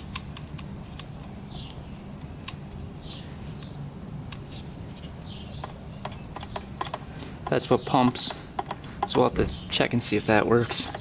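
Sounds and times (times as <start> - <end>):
steady low hum: 0.0 - 11.0
clicks and taps of engine parts: 5.6 - 9.6, 10.6 - 11.0.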